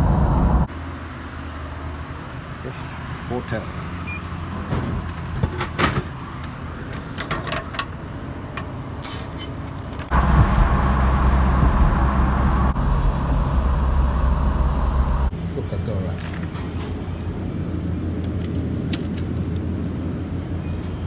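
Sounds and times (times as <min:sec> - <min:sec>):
low car hum: 0:00.0 - 0:00.8, 0:10.1 - 0:15.3
car engine road and wind noise: 0:00.0 - 0:15.5.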